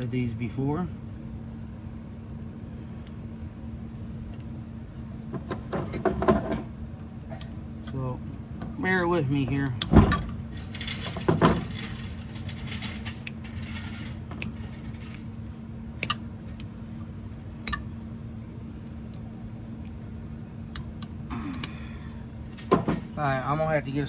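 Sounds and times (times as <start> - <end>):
steady low hum: 0.0 - 24.0
metal clicks of pliers: 16.0 - 16.7, 17.6 - 17.9.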